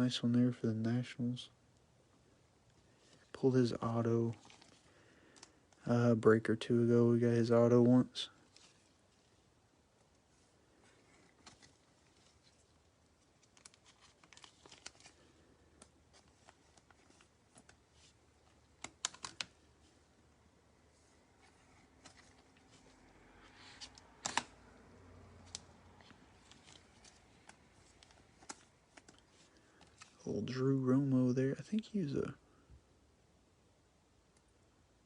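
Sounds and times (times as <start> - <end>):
cards being handled and flipped: 4.2 - 5.8, 8.3 - 9.4, 10.1 - 20.0, 20.9 - 24.7, 25.4 - 30.3.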